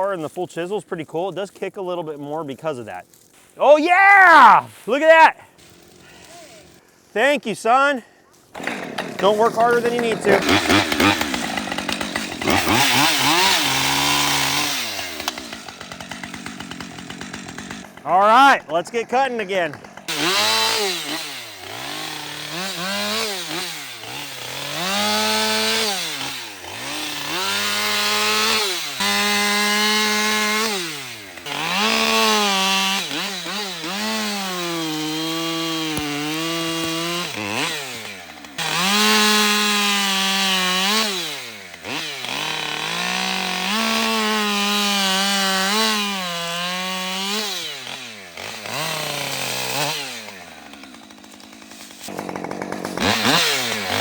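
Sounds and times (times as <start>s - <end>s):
chainsaw cutting wood: 5.4s - 7.0s, 8.4s - 54.0s.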